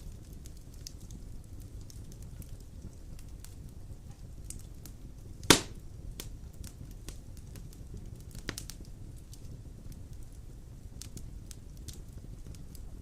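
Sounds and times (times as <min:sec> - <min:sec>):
low rumble of flames: 0:00.0 - 0:13.0
wood fire crackling: 0:00.0 - 0:13.0
sharp pop of fire: 0:05.4 - 0:06.3, 0:08.3 - 0:08.8.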